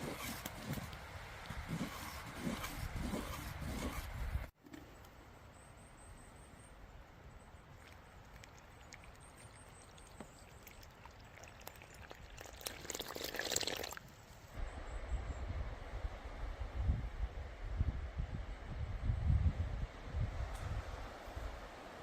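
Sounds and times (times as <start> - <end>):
liquid pouring: 8.3 - 14.0.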